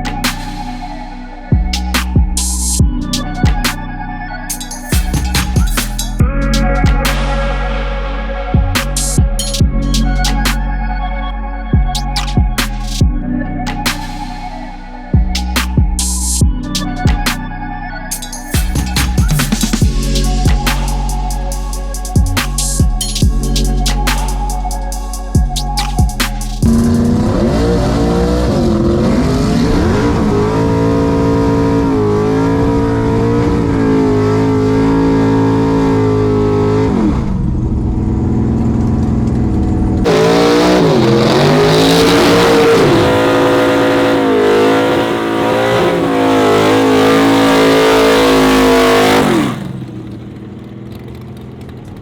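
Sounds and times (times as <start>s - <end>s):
race car engine revving: 25.7s - 52.0s.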